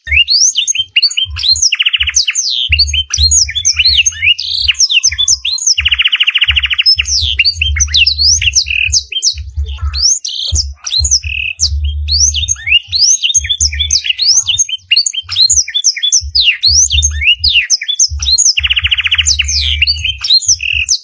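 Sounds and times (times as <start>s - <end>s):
canary singing: 0.0s - 21.0s
low thumping: 2.7s - 5.9s, 6.5s - 14.6s, 16.2s - 20.9s.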